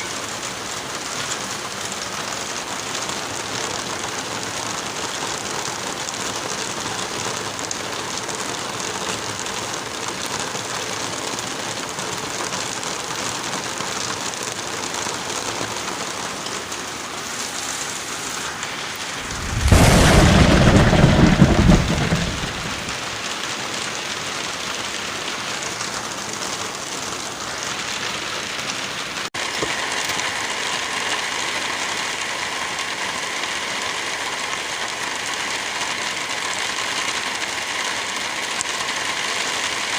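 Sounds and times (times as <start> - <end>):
heavy rain: 0.0 - 39.9
thunder clap and rumble: 19.1 - 23.1.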